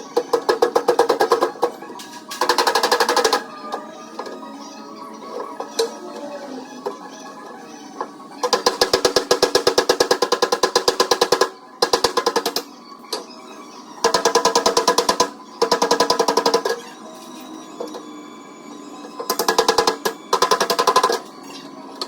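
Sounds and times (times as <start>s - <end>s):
rapid hammering on metal panel: 8.4s - 12.7s, 14.0s - 16.8s, 19.3s - 21.2s.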